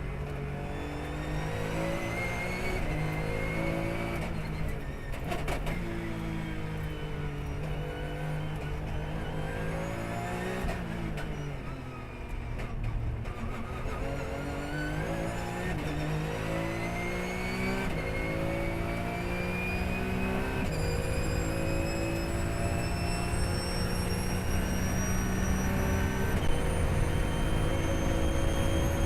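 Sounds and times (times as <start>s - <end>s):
race car engine revving: 13.6s - 29.0s.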